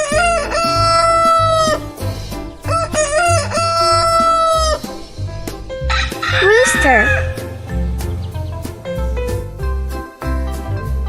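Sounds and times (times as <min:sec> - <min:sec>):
background music with beat: 0:00.0 - 0:11.0
rooster crowing: 0:02.7 - 0:04.9, 0:05.9 - 0:07.5.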